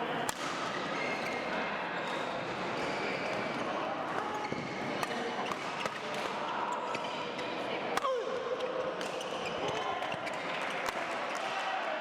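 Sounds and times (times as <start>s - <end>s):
sneakers squeaking on floor: 0.7s - 6.0s.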